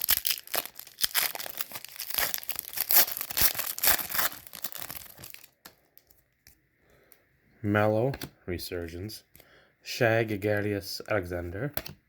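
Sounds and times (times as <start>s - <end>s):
plastic wrapper tearing and crinkling: 0.0s - 6.2s.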